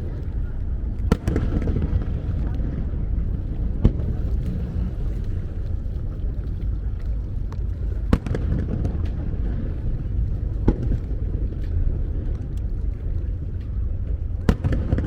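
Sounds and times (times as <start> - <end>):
wind rumble on microphone: 0.0 - 15.0
fireworks bursting with bangs: 0.8 - 5.7, 7.5 - 12.4, 14.3 - 15.0.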